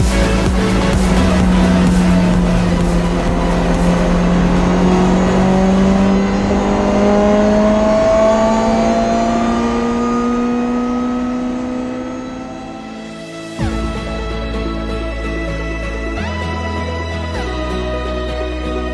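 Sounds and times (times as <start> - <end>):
race car engine accelerating: 0.0 - 15.0.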